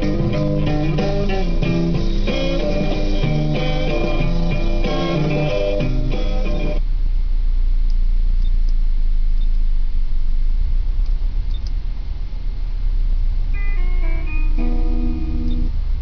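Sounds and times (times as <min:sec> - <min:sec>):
guitar music from car stereo: 0:00.0 - 0:06.8, 0:13.5 - 0:16.0
car engine idling: 0:00.0 - 0:16.0
stereo control clicks: 0:11.0 - 0:11.8.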